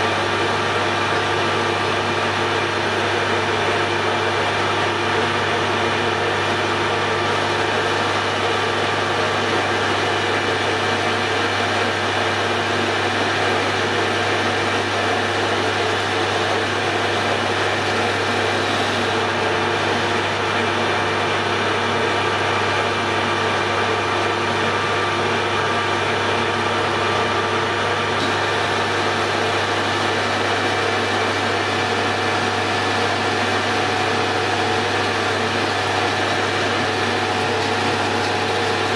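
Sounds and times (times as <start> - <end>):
metal lathe humming: 0.0 - 38.9.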